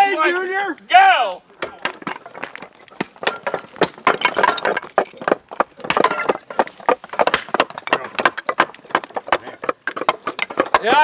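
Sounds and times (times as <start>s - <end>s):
voices: 0.0s - 2.0s, 10.6s - 11.0s
wood chopping and cracking: 1.6s - 11.0s.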